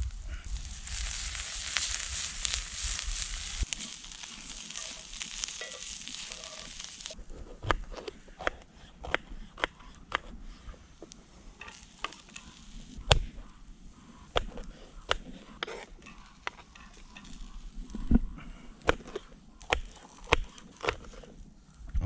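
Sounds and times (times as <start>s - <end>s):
onions sizzling in a frying pan: 0.0s - 7.2s, 11.0s - 13.2s, 14.4s - 18.1s.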